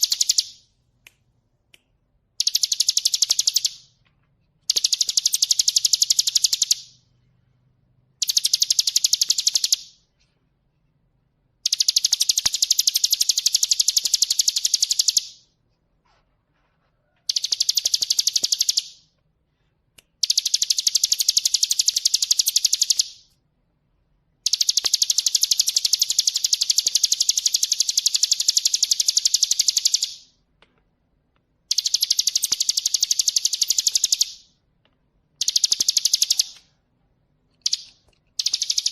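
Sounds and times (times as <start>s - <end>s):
bird singing high trill: 0.0s - 0.6s, 37.6s - 38.9s.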